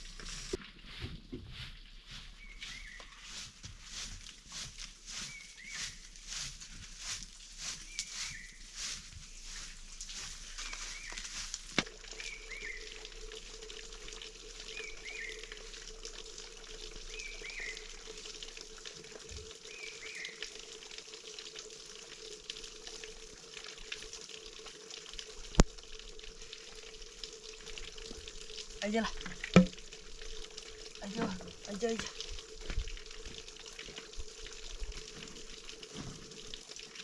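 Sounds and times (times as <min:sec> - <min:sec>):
rice sizzling in a pan: 0:01.6 - 0:12.8.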